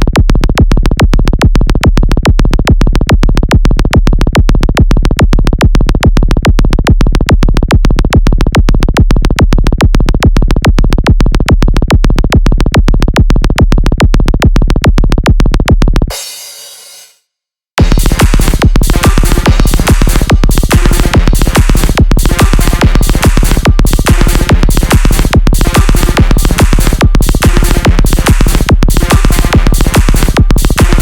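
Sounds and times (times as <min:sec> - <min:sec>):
electronic dance music: 0:16.1 - 0:17.2, 0:17.8 - 0:31.0.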